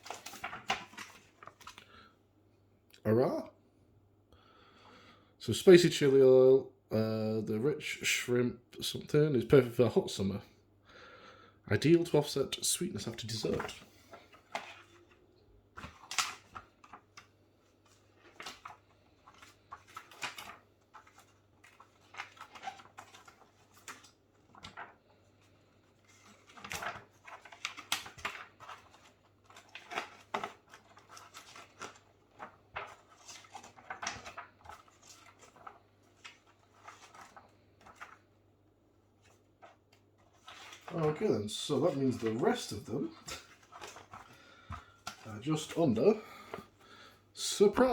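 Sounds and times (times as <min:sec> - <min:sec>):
wrappers crinkling and rustling: 0:15.8 - 0:38.4, 0:39.2 - 0:47.9.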